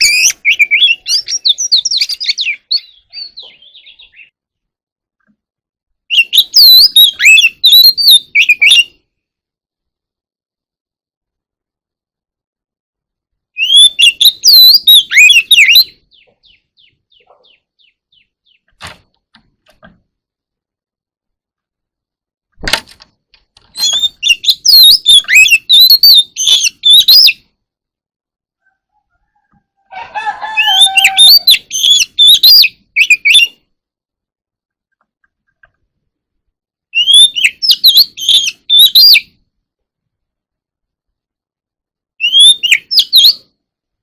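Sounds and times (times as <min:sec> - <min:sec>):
bird singing whistled notes: 0:00.0 - 0:04.4, 0:06.0 - 0:09.0, 0:13.5 - 0:18.7, 0:23.7 - 0:27.5, 0:30.6 - 0:33.7, 0:36.9 - 0:39.4, 0:42.2 - 0:43.5
soft quiet bird notes: 0:00.0 - 0:09.4, 0:13.5 - 0:20.0.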